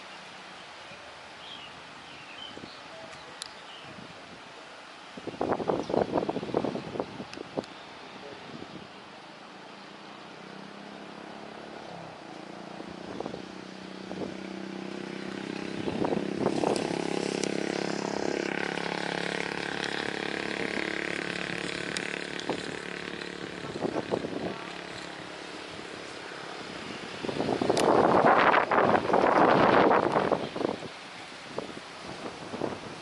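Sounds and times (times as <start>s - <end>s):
jet airliner engines passing: 10.2s - 33.0s.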